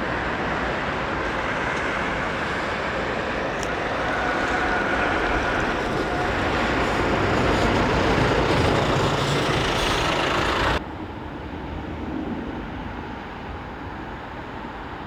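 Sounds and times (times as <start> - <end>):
jet airliner roar: 1.3 - 10.8
dull rumble: 3.5 - 10.8.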